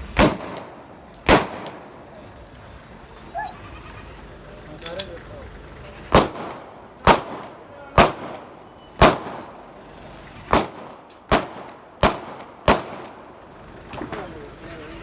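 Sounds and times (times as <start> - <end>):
gunshots: 0.1 - 2.0, 6.1 - 9.6, 10.5 - 13.4.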